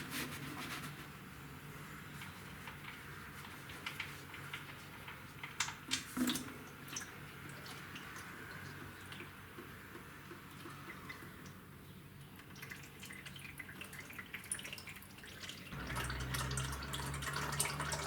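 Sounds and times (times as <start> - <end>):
small drips: 2.2 - 11.6, 12.2 - 18.0.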